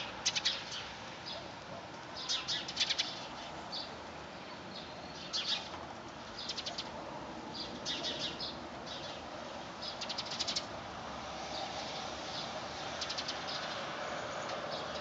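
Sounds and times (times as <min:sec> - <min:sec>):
small birds chirping: 0:00.0 - 0:01.5, 0:02.1 - 0:10.7, 0:11.5 - 0:15.0
wind and rain hiss: 0:00.0 - 0:15.0.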